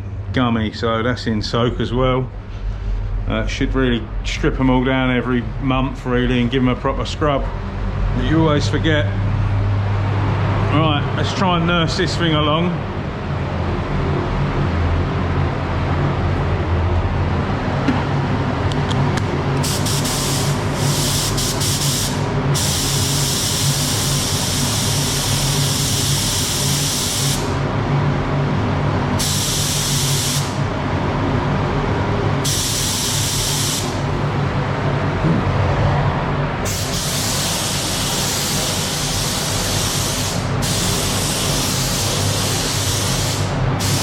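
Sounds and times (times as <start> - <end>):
low mechanical hum: 0.0 - 44.0
spray gun air hiss: 19.6 - 27.6, 29.2 - 30.6, 32.4 - 34.1, 36.6 - 44.0.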